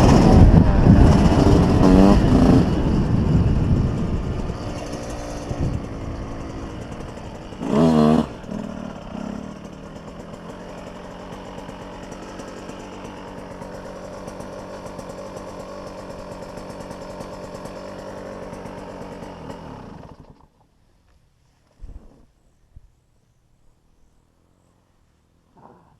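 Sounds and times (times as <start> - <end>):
dirt bike engine revving: 0.0 - 20.4.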